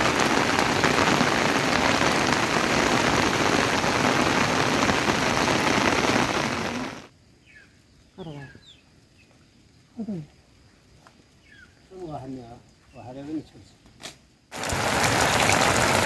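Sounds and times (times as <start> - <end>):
heavy rain falling: 0.0 - 7.1, 14.5 - 16.0
faint chirps: 6.0 - 13.8.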